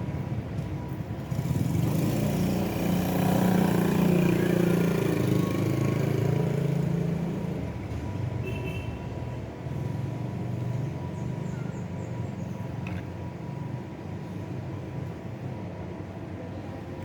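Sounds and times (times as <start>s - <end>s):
vehicle engine passing by: 1.2s - 8.0s.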